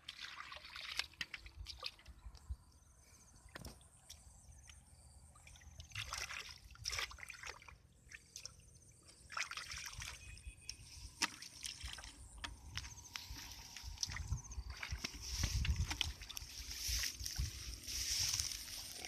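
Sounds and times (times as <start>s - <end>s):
water splashes: 0.0s - 2.1s, 5.3s - 17.6s
water sloshing and trickling: 0.0s - 19.0s.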